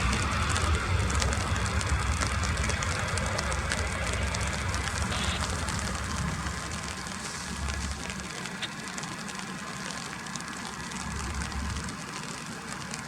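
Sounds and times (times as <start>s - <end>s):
jet engines rumbling: 0.0s - 13.0s
rain pattering: 0.0s - 13.0s.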